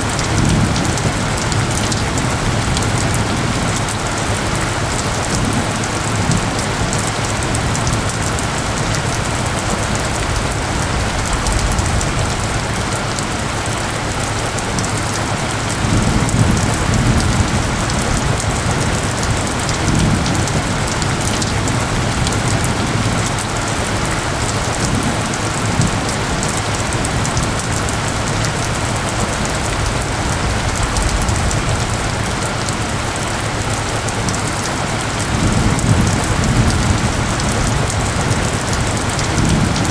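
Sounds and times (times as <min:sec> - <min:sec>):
distant thunder rumbles: 0:00.0 - 0:39.9
heavy rain pattering: 0:00.0 - 0:39.9.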